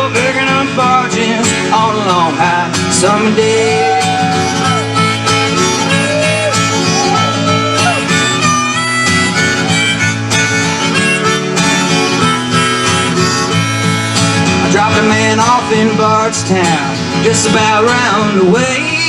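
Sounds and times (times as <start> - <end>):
strummed acoustic guitar: 0.0 - 19.0
harmonica melody: 3.1 - 16.4.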